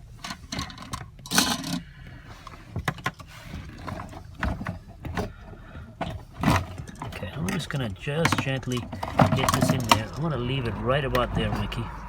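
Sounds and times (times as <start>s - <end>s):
clicks and knocks of handling parts: 0.0s - 11.9s.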